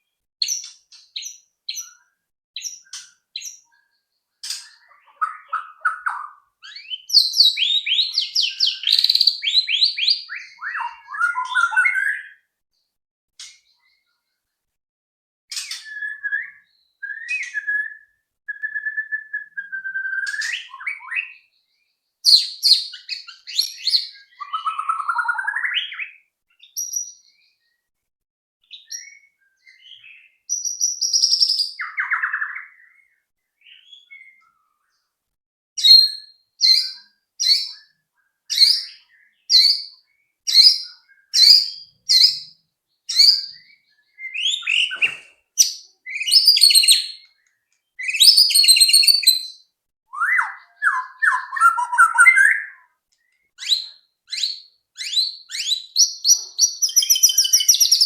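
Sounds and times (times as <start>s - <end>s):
bird song with whistles: 0.4s - 3.7s, 4.5s - 12.5s, 15.5s - 21.5s, 22.2s - 27.8s, 28.6s - 34.6s, 35.8s - 58.0s
short sharp repeated bird notes: 38.6s - 47.3s.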